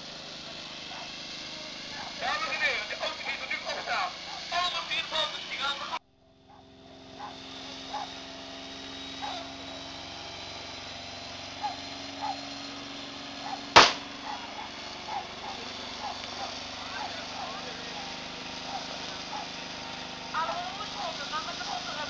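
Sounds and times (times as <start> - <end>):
car engine during burnout: 0.0 - 22.0
loud bang: 13.8 - 14.1.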